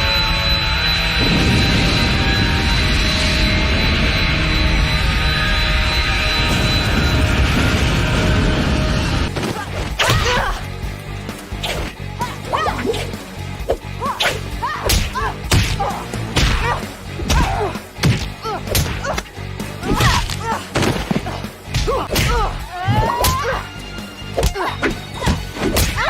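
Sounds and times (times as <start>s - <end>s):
punch and kick impacts: 14.2s - 19.1s.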